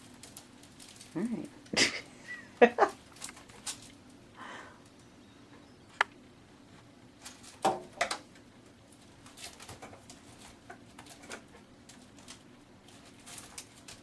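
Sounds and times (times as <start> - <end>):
paper rustling: 8.9 - 14.0.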